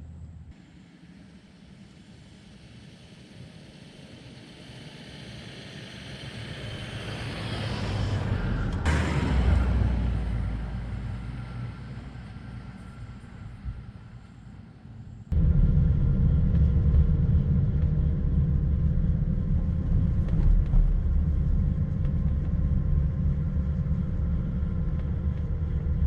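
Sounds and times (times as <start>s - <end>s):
road noise: 4.7s - 26.0s
vehicle engine passing: 6.1s - 26.0s.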